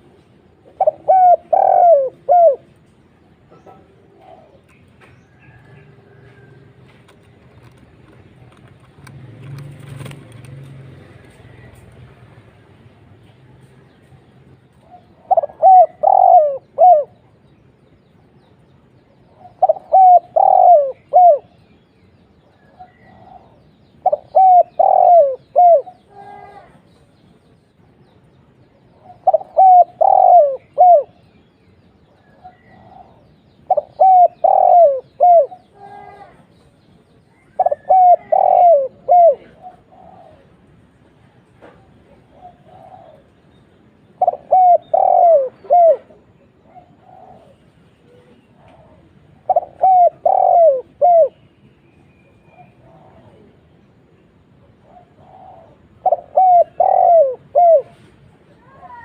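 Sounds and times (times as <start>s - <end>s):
dove cooing: 0.0s - 6.9s, 14.8s - 17.3s, 19.3s - 21.6s, 22.5s - 26.8s, 28.9s - 31.3s, 32.1s - 36.4s, 37.4s - 41.0s, 41.6s - 43.4s, 44.1s - 51.4s, 52.4s - 59.0s.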